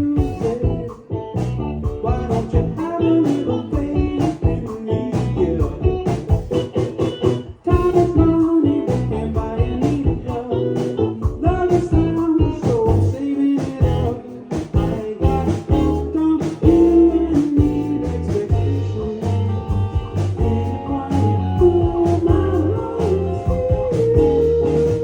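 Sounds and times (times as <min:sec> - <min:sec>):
lead singer singing: 0:00.0 - 0:06.3, 0:07.5 - 0:25.0
drums steady beat: 0:00.0 - 0:25.0
live rock band playing: 0:00.0 - 0:25.0.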